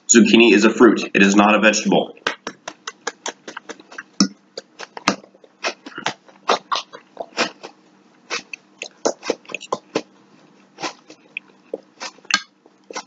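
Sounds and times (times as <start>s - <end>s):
close-up chewing: 2.8s - 13.0s.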